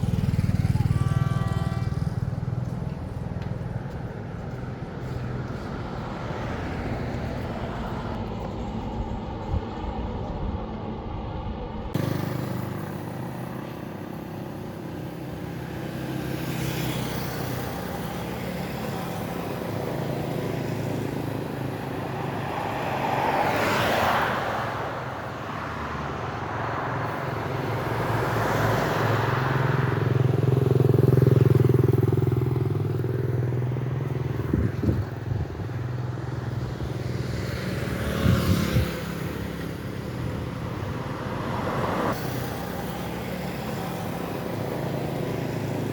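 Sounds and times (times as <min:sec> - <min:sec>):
vehicle engines running: 0:00.0 - 0:45.9
vehicles passing close by: 0:00.0 - 0:45.9.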